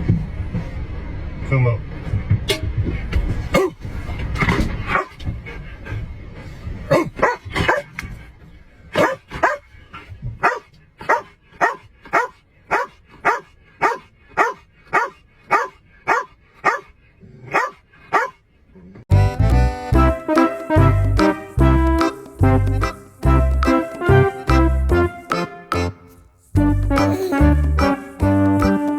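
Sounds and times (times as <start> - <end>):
dog barking: 3.5 - 3.8, 4.9 - 5.2, 6.9 - 7.9, 9.0 - 9.7, 10.4 - 16.9, 17.5 - 18.4.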